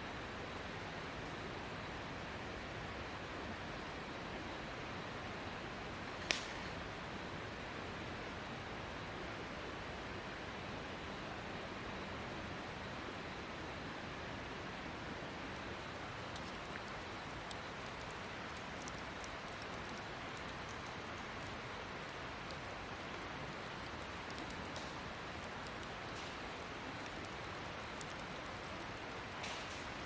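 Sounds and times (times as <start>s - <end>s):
steady hiss: 0.0s - 30.0s
faint crackling ticks: 15.8s - 30.0s.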